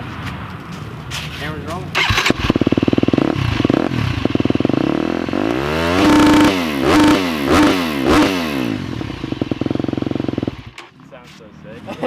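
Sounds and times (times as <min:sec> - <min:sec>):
dirt bike engine revving: 0:01.9 - 0:11.0.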